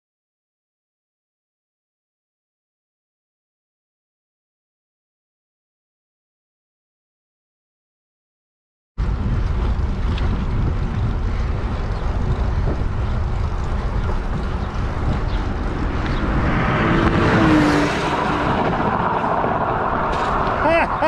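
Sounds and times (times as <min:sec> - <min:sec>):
car road and engine rumble: 0:09.0 - 0:21.0.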